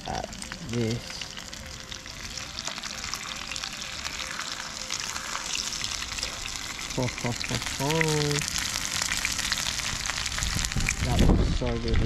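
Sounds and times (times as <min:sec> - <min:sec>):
food sizzling and crackling in a pan: 0:00.0 - 0:12.0.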